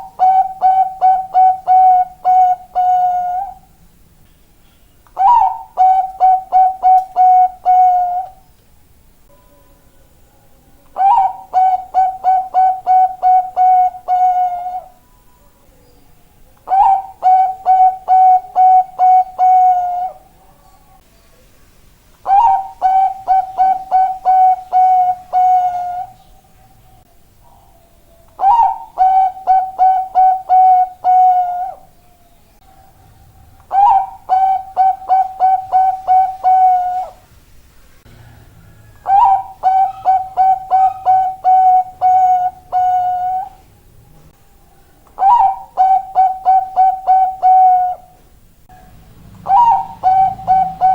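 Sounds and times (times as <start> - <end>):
dove cooing: 0.0 - 3.7, 5.2 - 8.4, 10.9 - 15.0, 16.6 - 21.0, 22.2 - 26.3, 27.4 - 37.2, 38.1 - 43.7, 44.8 - 48.2, 49.3 - 50.9.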